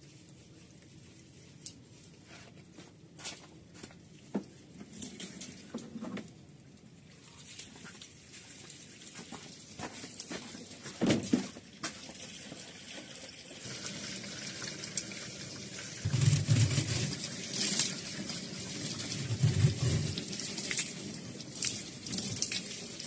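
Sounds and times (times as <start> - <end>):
tap water running into sink: 11.2 - 23.0.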